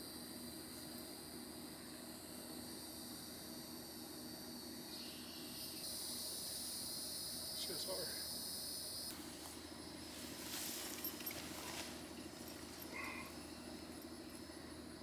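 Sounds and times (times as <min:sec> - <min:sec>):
insects chirping: 0:00.0 - 0:15.0
faint rustling: 0:09.1 - 0:14.5.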